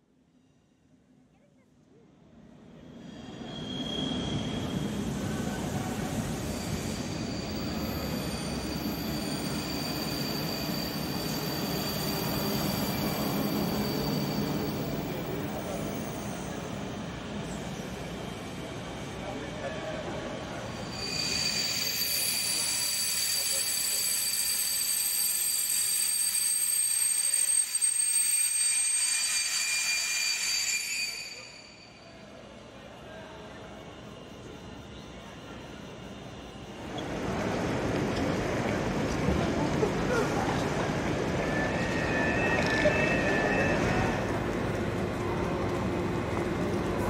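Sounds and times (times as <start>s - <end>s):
electric train rumbling on rails: 2.2s - 47.0s
thin high whine: 20.7s - 32.3s.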